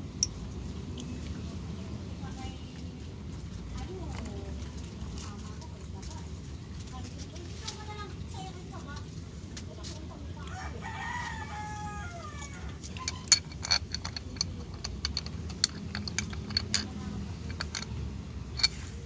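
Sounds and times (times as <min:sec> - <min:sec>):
rooster crowing: 0:10.5 - 0:12.8.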